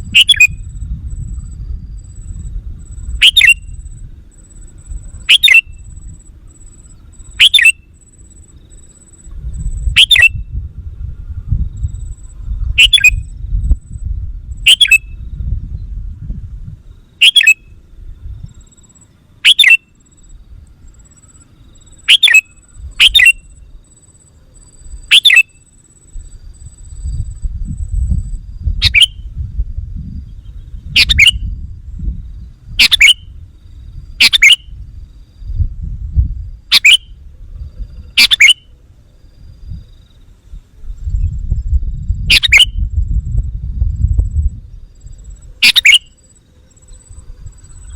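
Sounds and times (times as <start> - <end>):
bulbul calling: 0.0 - 0.8, 3.0 - 6.0, 6.6 - 10.5, 12.8 - 13.3, 14.6 - 15.2, 17.2 - 17.8, 19.4 - 20.0, 20.9 - 23.7, 24.6 - 25.7, 28.8 - 29.3, 30.4 - 31.5, 32.7 - 33.4, 34.2 - 34.8, 36.7 - 37.2, 37.9 - 38.8, 42.3 - 42.8, 45.4 - 47.9
low rumble: 0.0 - 7.4, 8.8 - 17.1, 26.2 - 38.2, 40.5 - 45.5.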